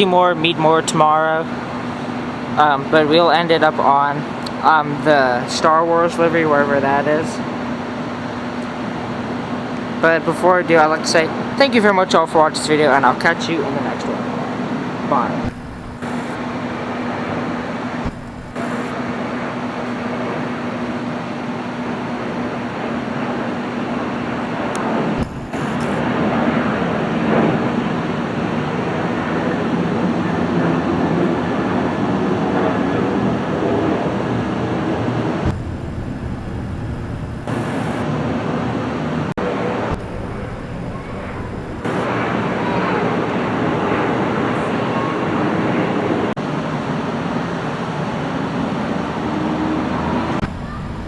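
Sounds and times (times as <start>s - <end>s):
jet airliners rumbling: 0.0s - 51.0s.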